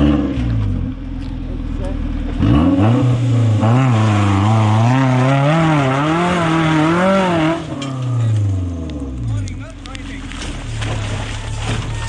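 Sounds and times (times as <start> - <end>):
car engine revving hard: 0.0 - 0.9, 2.3 - 9.2.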